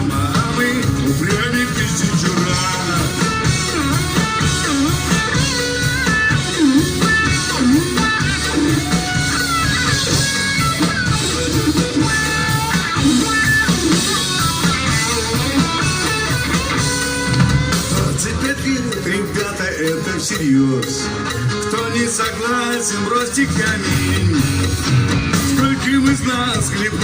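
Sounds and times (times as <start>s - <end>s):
bass: 0.0s - 27.0s
drums: 0.0s - 27.0s
electric guitar melody: 0.0s - 27.0s.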